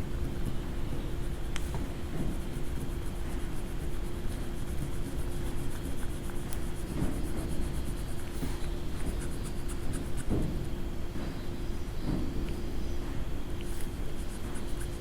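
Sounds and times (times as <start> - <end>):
coloring tool scratching paper: 0.0 - 10.6, 13.9 - 15.0
steady hum: 0.0 - 15.0.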